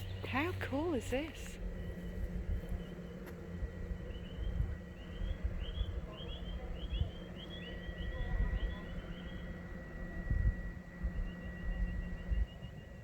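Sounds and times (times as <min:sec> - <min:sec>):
bird chirping: 0:00.0 - 0:03.2, 0:03.8 - 0:09.8
wind on microphone: 0:00.0 - 0:13.0.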